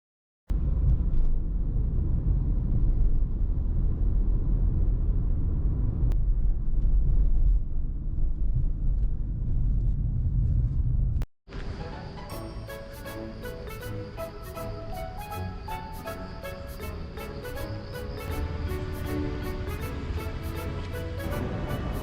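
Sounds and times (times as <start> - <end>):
strong wind buffeting microphone: 0.5 - 11.2.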